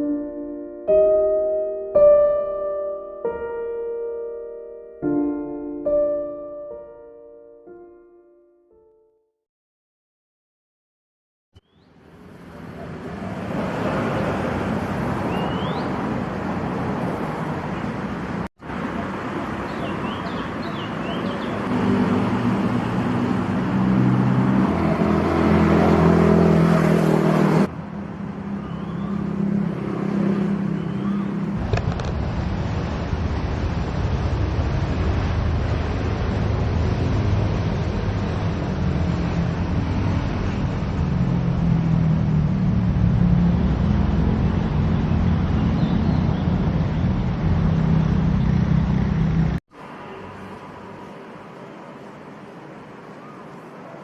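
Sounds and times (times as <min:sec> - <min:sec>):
vehicles passing: 0:11.6 - 0:54.0.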